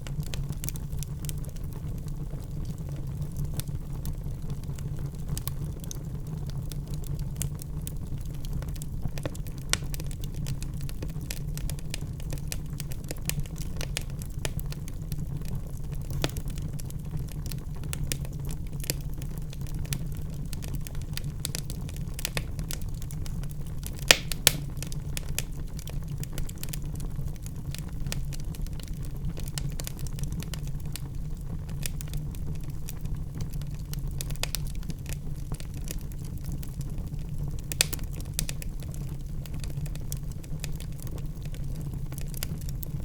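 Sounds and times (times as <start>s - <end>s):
flames rumbling: 0.0s - 43.0s
log fire crackling and popping: 0.0s - 43.0s.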